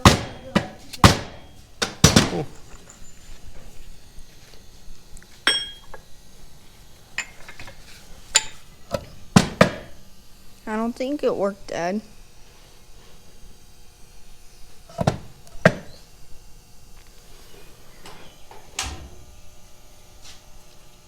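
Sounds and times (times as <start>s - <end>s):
metal knocks and clanks: 0.0s - 2.9s.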